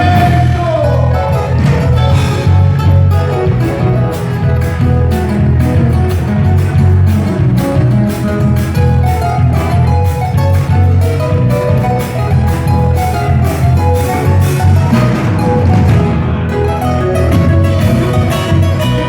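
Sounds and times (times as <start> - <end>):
strummed guitars folk dance tune: 0.0 - 19.0.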